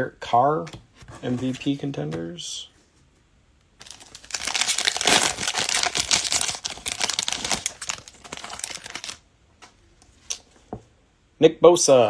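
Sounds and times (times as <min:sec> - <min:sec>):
card pack wrapper crinkling and tearing: 0:03.8 - 0:09.2.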